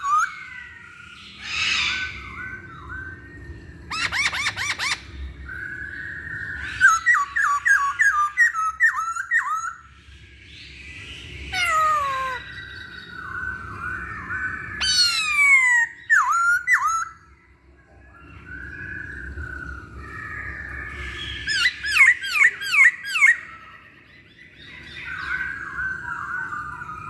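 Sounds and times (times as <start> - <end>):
laughingthrush singing: 11.5 - 12.6.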